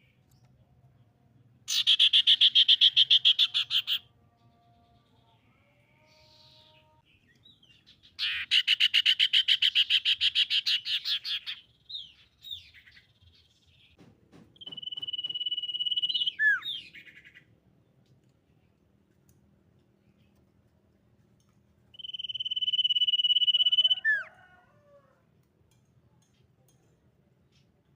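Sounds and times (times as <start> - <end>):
bird trilling and whistling: 1.7 - 4.0, 8.1 - 13.0, 14.6 - 17.4, 22.0 - 24.3.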